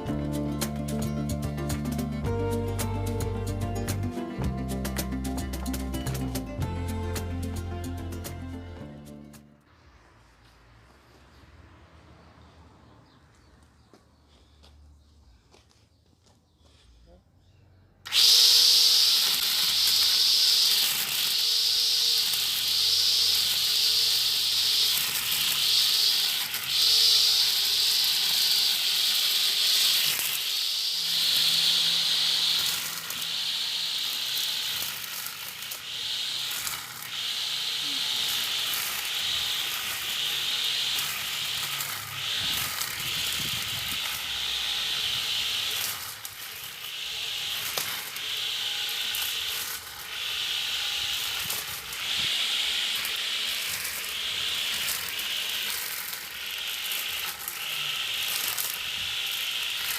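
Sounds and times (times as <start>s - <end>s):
brush cutter motor whirring: 18.0s - 59.9s.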